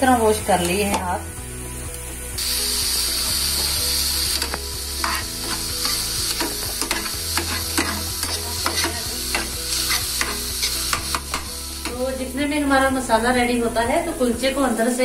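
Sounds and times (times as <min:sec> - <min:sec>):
vegetables sizzling in a pan: 0:00.0 - 0:15.0
metal spatula scraping a pan: 0:04.4 - 0:11.5.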